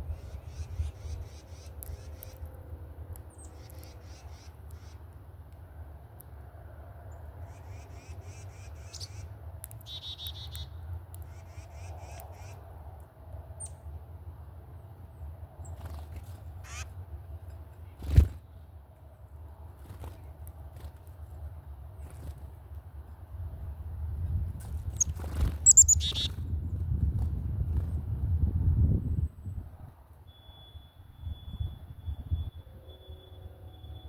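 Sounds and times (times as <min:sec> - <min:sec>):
wild birds calling: 0:25.0 - 0:26.3.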